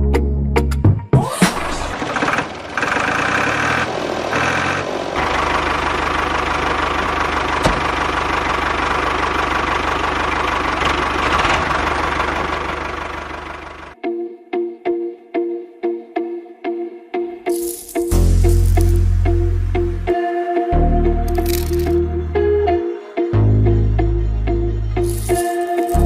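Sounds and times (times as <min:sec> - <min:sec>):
small tractor motor running: 0:01.8 - 0:14.0, 0:25.0 - 0:26.0.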